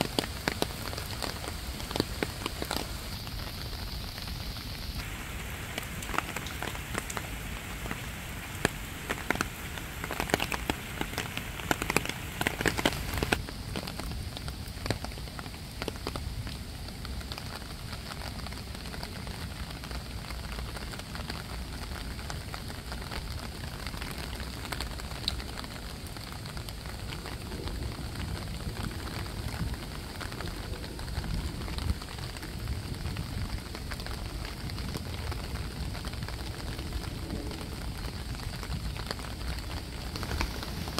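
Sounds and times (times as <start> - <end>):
sharp splashes and clicks: 0.0 - 3.6, 4.9 - 16.6, 37.4 - 40.9
fountain water splashing: 0.0 - 40.9.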